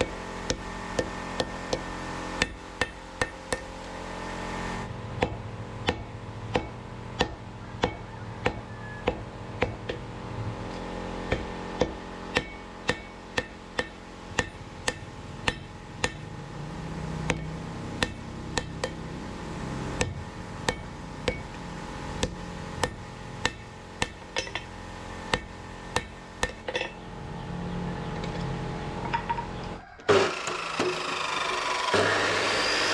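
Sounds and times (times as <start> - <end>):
hammer striking steel on anvil: 0.0 - 3.7, 5.2 - 10.1, 11.3 - 16.3, 17.3 - 19.1, 20.0 - 21.6, 22.2 - 24.7, 25.3 - 27.0
steady hum: 0.0 - 32.9.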